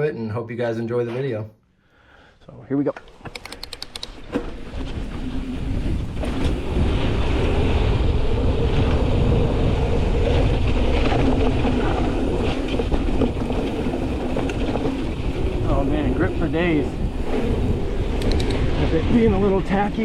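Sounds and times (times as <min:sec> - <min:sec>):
bike rattle: 0:03.2 - 0:20.0
bike tyres rumbling on dirt: 0:04.2 - 0:20.0.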